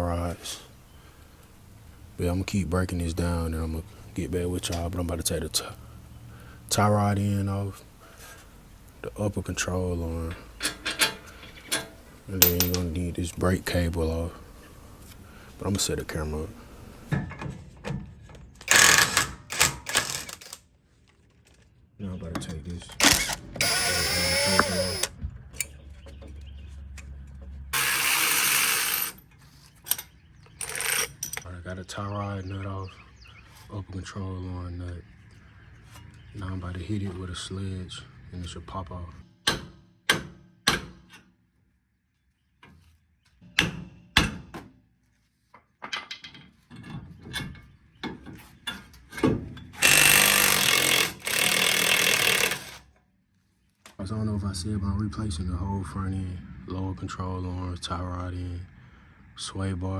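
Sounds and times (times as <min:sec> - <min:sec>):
power tool whining: 0:00.0 - 0:17.1, 0:23.0 - 0:25.2, 0:27.8 - 0:29.2, 0:30.6 - 0:31.2, 0:49.8 - 0:52.8
power tool running: 0:23.0 - 0:25.2, 0:27.8 - 0:29.2, 0:30.6 - 0:31.1, 0:49.8 - 0:52.8.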